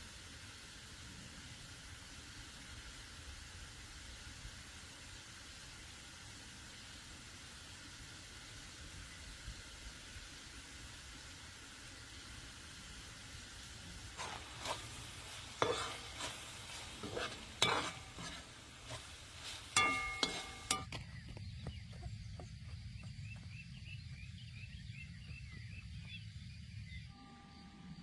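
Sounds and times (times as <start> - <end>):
light sizzle: 0.0 - 21.0
faint chirping: 13.9 - 28.0
metal utensil scraping a pan: 14.0 - 20.9.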